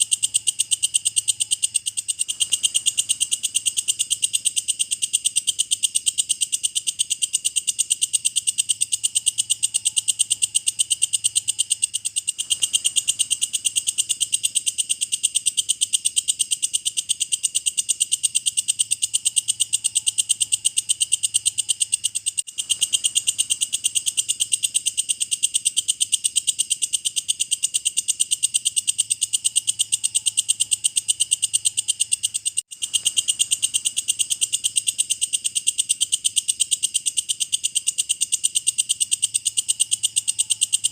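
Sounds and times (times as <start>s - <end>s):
insect calling in high-pitched pulses: 0.0s - 40.9s.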